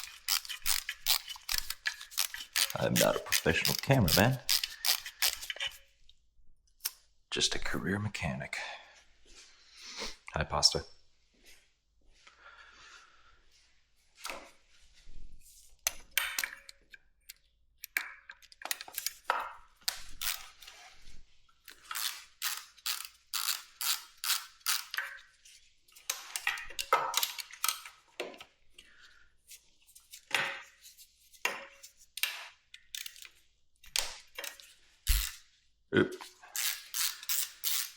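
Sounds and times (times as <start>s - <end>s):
tools and metal parts clinking: 0.0s - 5.8s, 17.9s - 19.5s, 21.7s - 25.3s, 25.9s - 28.0s, 36.5s - 37.9s.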